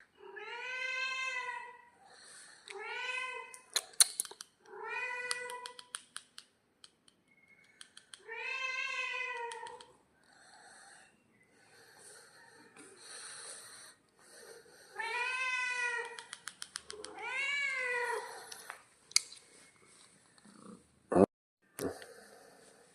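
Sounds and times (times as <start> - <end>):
sharp clicks: 3.7 - 4.6, 5.3 - 8.2, 16.0 - 17.2.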